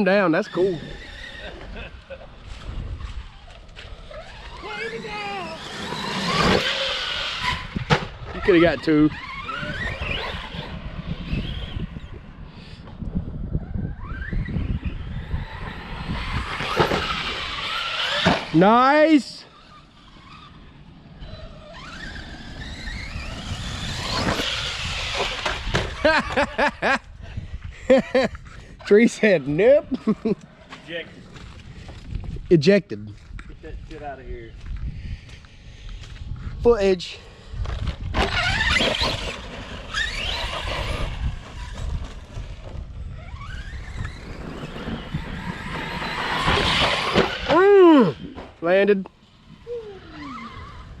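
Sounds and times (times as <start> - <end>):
electric toy truck motor whine: 0.5 - 26.4, 37.7 - 48.3, 49.2 - 51.0.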